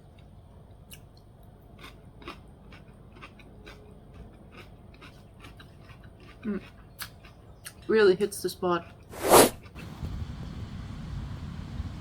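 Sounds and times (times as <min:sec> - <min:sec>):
crunching while eating salad: 0:00.0 - 0:07.9.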